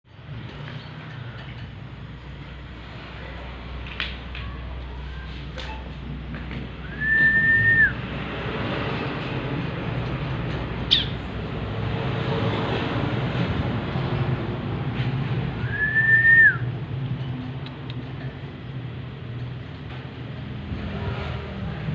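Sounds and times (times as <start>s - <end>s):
long level whistles: 6.8s - 8.0s, 15.6s - 16.6s.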